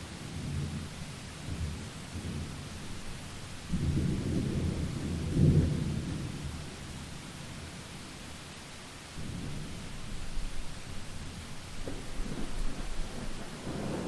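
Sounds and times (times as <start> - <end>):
steady rain: 0.0 - 14.0
thunder rumbling: 3.6 - 6.7, 9.2 - 14.0.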